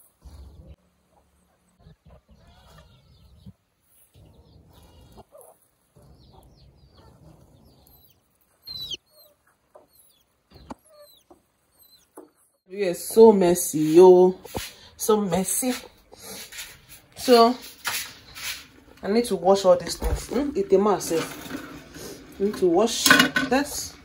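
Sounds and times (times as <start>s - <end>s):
chickens clucking: 0.0s - 12.6s
high chirping calls: 1.4s - 14.6s, 15.4s - 20.1s.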